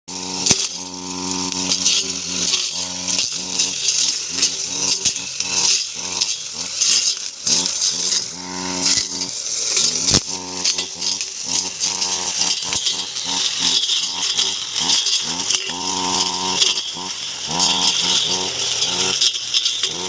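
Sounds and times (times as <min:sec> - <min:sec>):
grass cutter motor running: 0:00.1 - 0:20.0.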